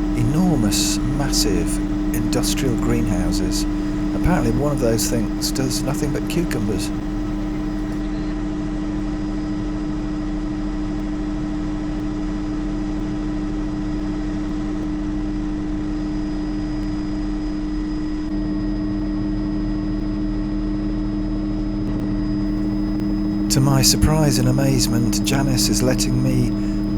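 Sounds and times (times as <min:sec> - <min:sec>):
helicopter rotor beat: 0:00.0 - 0:08.0, 0:22.5 - 0:26.9
helicopter turbine whine: 0:00.0 - 0:08.0, 0:22.5 - 0:26.9.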